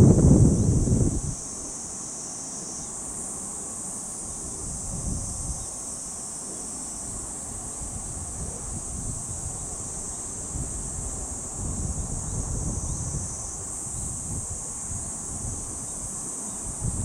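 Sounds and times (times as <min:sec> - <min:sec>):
wind buffeting microphone: 0:00.0 - 0:01.4, 0:07.9 - 0:17.0
high insect chorus: 0:00.0 - 0:17.0.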